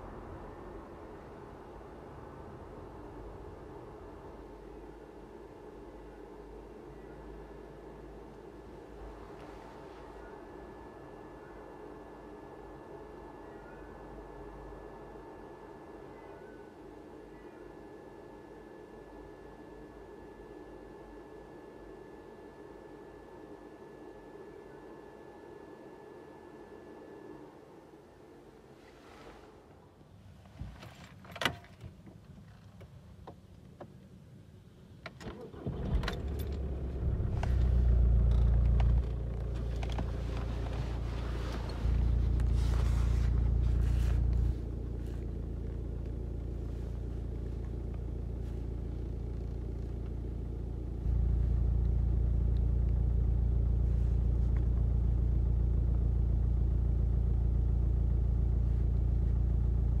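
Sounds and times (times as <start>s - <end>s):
diesel engine starting and idling: 35.2s - 60.0s.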